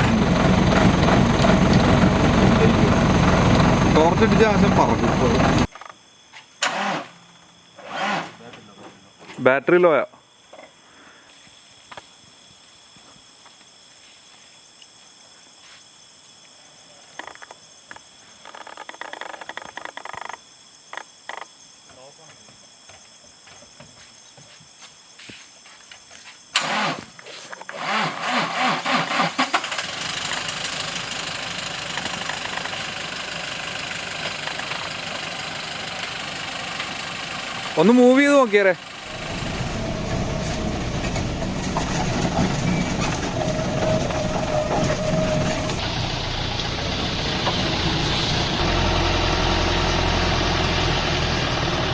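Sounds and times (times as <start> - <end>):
car engine cranking and idling: 0.0 - 5.7, 27.9 - 51.9
high-pitched insect calls: 10.3 - 22.1.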